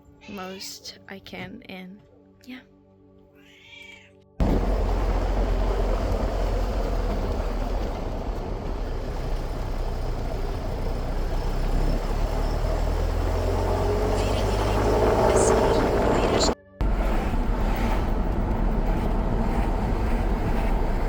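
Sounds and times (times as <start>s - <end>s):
vehicle low rumble: 4.4s - 21.0s.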